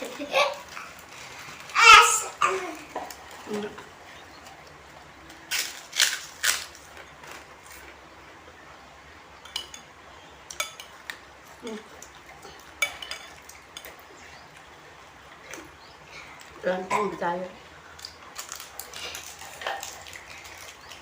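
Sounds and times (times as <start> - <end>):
spoon clinking against a dish: 9.4 - 9.9, 10.5 - 11.0, 12.8 - 14.0.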